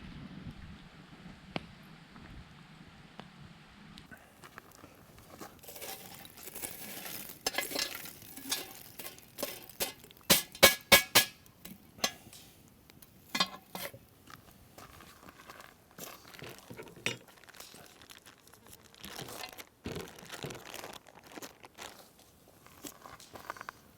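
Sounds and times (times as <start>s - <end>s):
metal cookware clinking and tapping: 5.7s - 14.0s.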